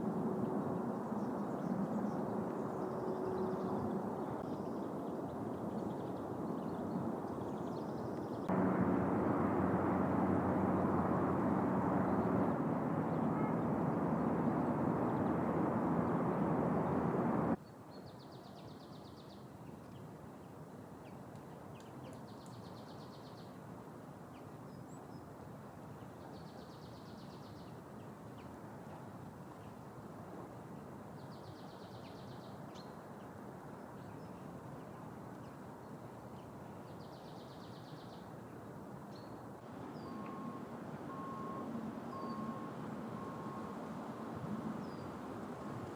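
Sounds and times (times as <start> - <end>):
quiet outdoor ambience: 0.0 - 45.9
loud rushing noise: 8.5 - 17.6.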